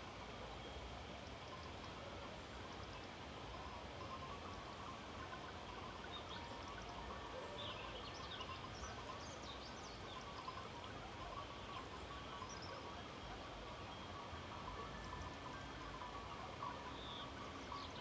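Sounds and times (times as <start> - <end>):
wind: 0.0 - 18.0.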